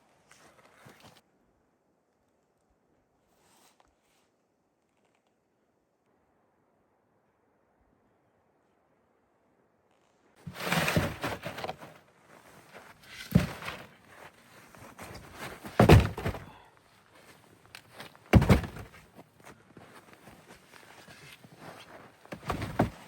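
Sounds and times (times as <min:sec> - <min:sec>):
faint rustling and knocking: 0:10.4 - 0:16.6, 0:20.2 - 0:23.0
heavy thunks: 0:10.5 - 0:11.9, 0:13.1 - 0:14.0, 0:14.9 - 0:16.7, 0:18.3 - 0:19.0, 0:22.3 - 0:23.0.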